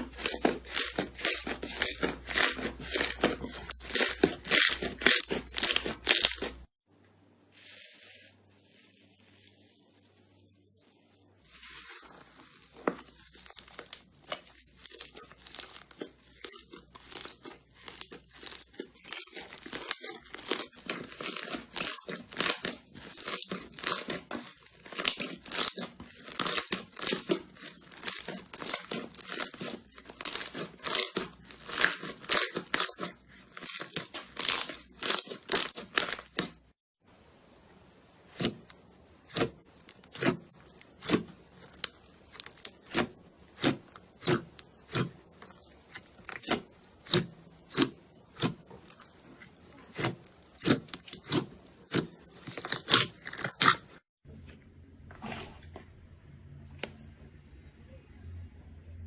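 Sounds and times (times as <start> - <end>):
slime crackling and popping: 13.0 - 36.7, 38.2 - 54.0.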